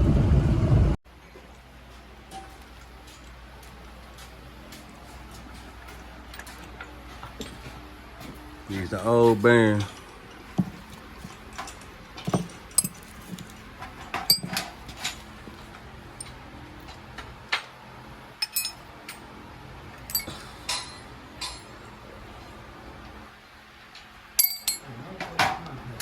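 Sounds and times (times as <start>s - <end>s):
small metal parts clinking: 9.6s - 17.0s, 18.4s - 19.2s, 20.0s - 21.8s, 24.4s - 24.9s.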